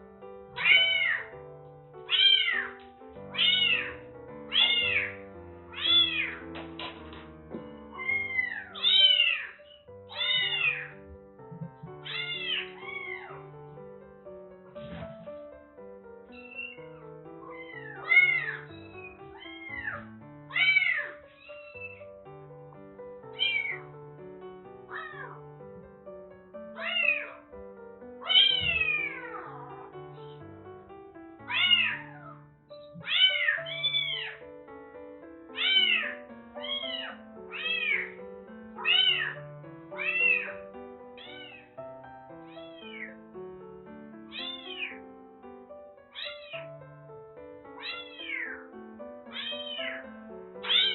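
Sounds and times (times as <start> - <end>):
kitten meowing: 0.6 - 1.4, 2.1 - 6.5, 7.8 - 13.4, 16.3 - 22.0, 23.3 - 23.8, 24.9 - 25.4, 26.8 - 27.5, 28.2 - 30.4, 31.4 - 34.4, 35.6 - 38.2, 38.8 - 39.4, 40.0 - 40.6, 41.2 - 41.8, 42.5 - 43.2, 44.3 - 45.0, 46.1 - 46.6, 47.8 - 48.6, 49.3 - 50.0, 50.6 - 50.9.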